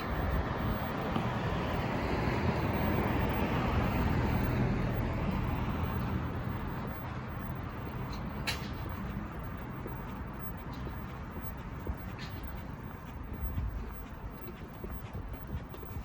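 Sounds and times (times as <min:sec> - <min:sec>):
vehicle driving past: 0:00.1 - 0:09.6.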